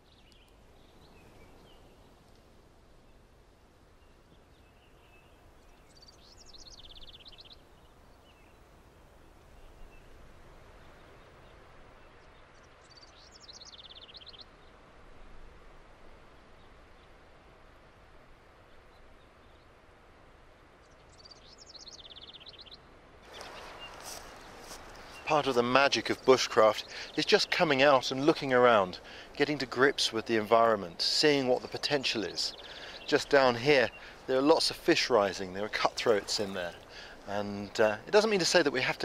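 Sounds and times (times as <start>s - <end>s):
songbird singing with trill: 0.0s - 2.2s, 4.0s - 8.6s, 9.2s - 14.8s, 20.8s - 39.0s
faint outdoor hiss: 0.0s - 39.0s.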